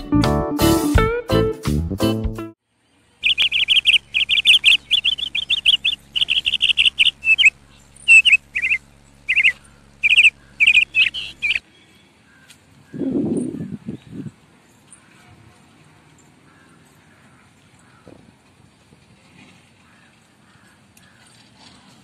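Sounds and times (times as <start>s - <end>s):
faint low hum: 2.8s - 18.0s
small birds chirping: 2.9s - 15.2s.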